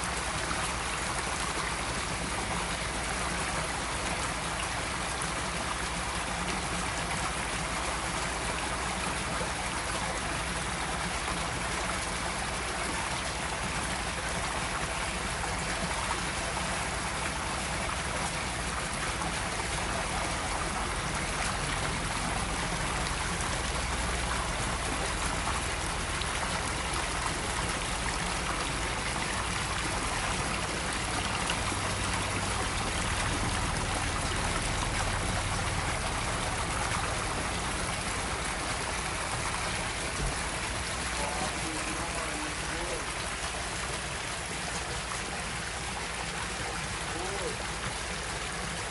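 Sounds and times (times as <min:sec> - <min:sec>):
water trickling into pond: 0:00.0 - 0:48.9.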